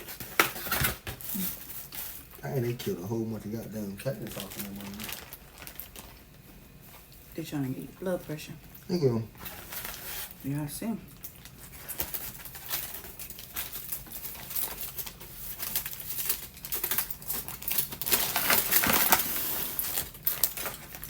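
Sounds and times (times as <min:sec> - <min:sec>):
food containers clicking and crinkling: 0:00.0 - 0:02.9, 0:04.0 - 0:07.1, 0:11.2 - 0:21.0.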